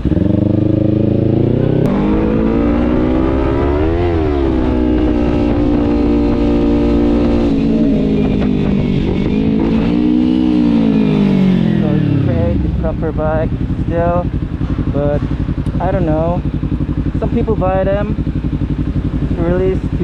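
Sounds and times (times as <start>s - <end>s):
low wind rumble: 0.0s - 20.0s
motorcycle engine revving: 0.0s - 20.0s.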